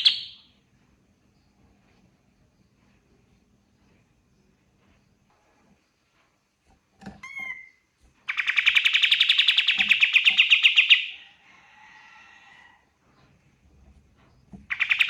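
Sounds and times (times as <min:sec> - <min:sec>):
bird rapid trill: 0:07.3 - 0:11.2, 0:14.7 - 0:15.0.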